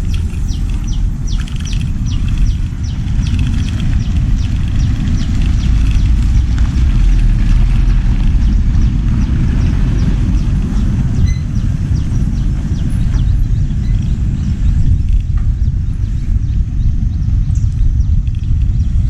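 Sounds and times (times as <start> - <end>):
light clicks and rattles: 0.0 - 7.8
wind buffeting microphone: 0.0 - 19.0.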